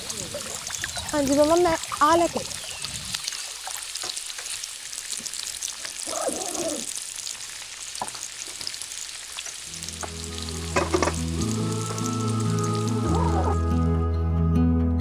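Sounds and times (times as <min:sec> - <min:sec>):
food frying in hot oil: 0:00.0 - 0:13.4
background music with held notes: 0:09.7 - 0:15.0.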